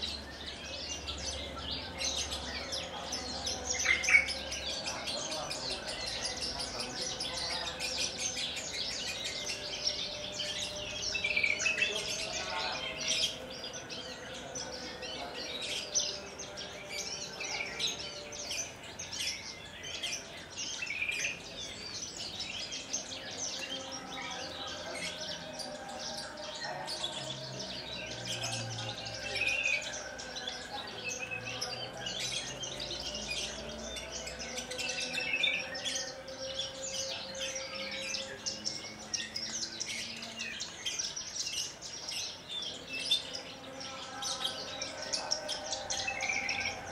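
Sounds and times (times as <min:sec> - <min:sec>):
bird singing chirps and trills: 0:00.0 - 0:46.9.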